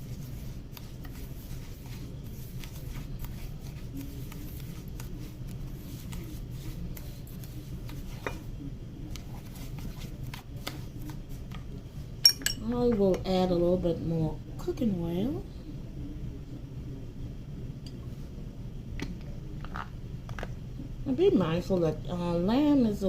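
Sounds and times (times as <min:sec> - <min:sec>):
scraping in a bowl: 0:00.0 - 0:08.5
steady low hum: 0:00.0 - 0:23.0.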